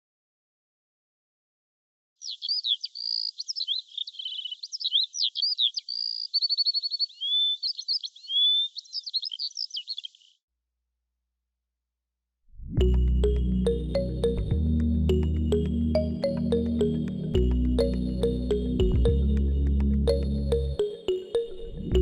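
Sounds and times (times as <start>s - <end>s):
songbird singing: 2.2s - 10.5s, 12.8s - 22.0s.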